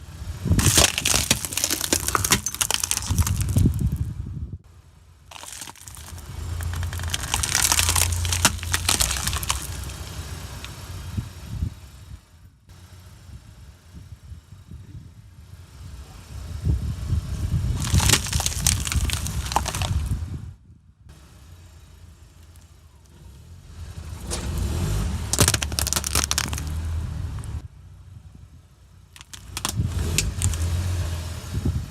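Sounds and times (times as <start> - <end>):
tyre crushing brittle objects: 0.6 - 4.0, 5.3 - 10.0, 17.8 - 20.2, 24.4 - 27.5, 29.2 - 30.8.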